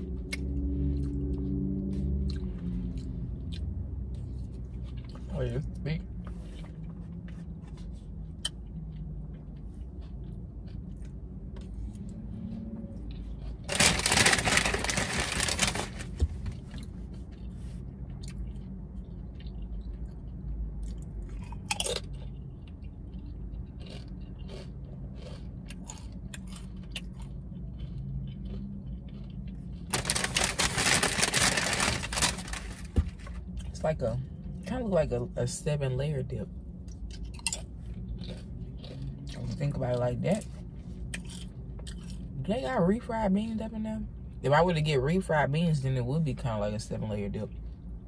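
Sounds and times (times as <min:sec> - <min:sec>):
quiet chewing: 0:00.1 - 0:05.3, 0:06.2 - 0:13.7, 0:16.6 - 0:30.2, 0:36.8 - 0:39.8
chips crunching: 0:13.1 - 0:16.9, 0:20.8 - 0:33.7, 0:37.1 - 0:40.0.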